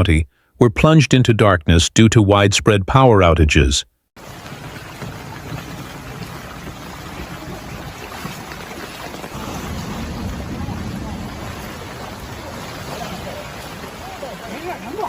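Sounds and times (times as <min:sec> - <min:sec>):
wind buffeting microphone: 0:04.2 - 0:14.6
heavy rain: 0:04.2 - 0:15.0.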